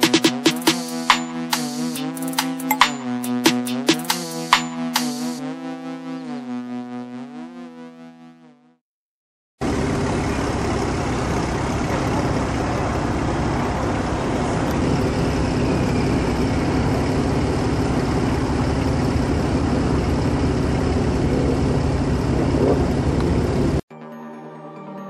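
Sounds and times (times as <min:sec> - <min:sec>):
car engines rumbling: 0:09.6 - 0:23.8
traffic background noise: 0:09.6 - 0:23.8.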